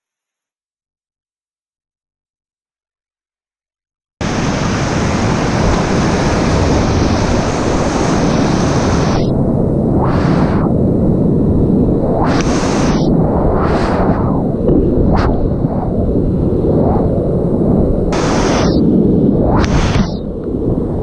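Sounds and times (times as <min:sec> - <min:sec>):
wind noise on microphone: 0:04.2 - 0:21.0.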